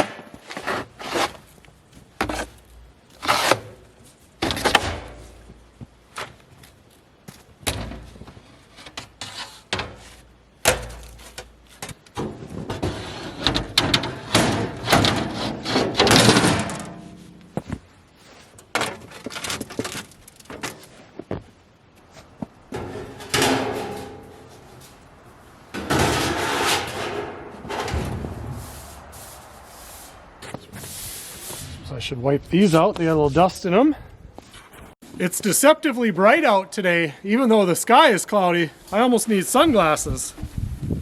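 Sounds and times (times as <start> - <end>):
scraping and rustling: 7.9 - 32.0.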